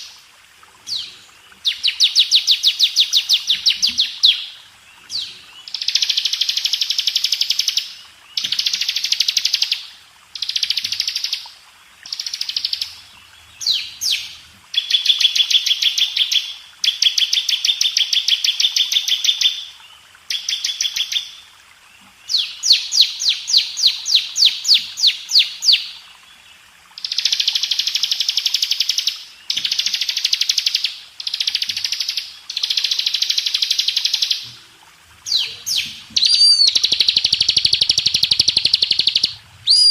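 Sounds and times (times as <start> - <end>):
bird singing high trills: 35.3 - 39.9.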